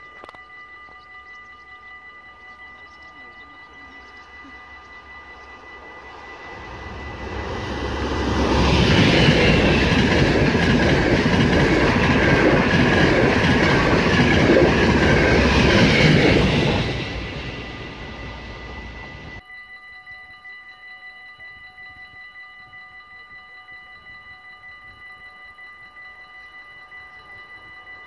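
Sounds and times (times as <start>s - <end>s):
train passing at speed: 3.8s - 19.4s.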